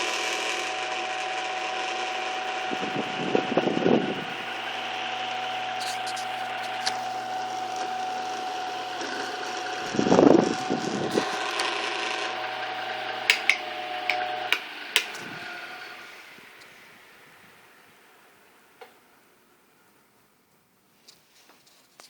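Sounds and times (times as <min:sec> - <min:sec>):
electric fan motor hum: 0:00.0 - 0:18.6
sharp clicks: 0:13.3 - 0:15.3.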